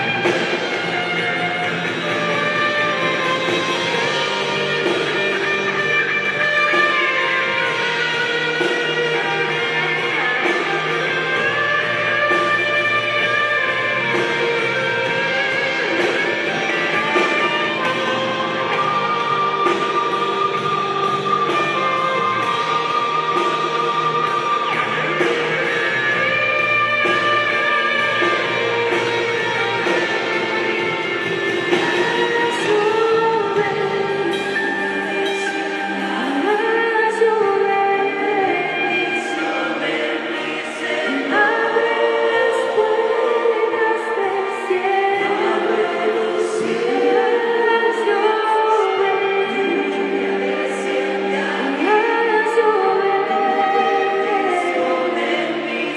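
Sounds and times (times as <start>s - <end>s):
steady drum beat: 0.0s - 37.2s
choir singing: 0.0s - 55.9s
worship band music with guitars: 0.0s - 55.9s.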